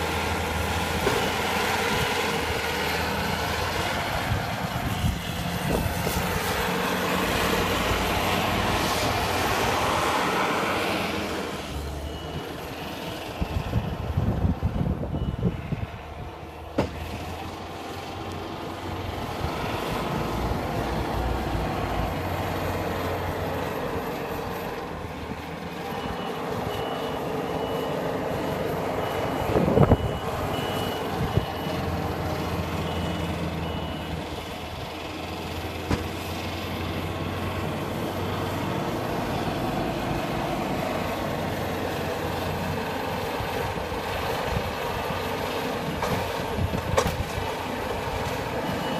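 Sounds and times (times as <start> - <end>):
heavy vehicle engine running: 0.0 - 48.9
reversing alarm beep: 4.8 - 6.4, 11.7 - 14.0, 15.0 - 15.8, 25.8 - 34.2, 48.6 - 48.9.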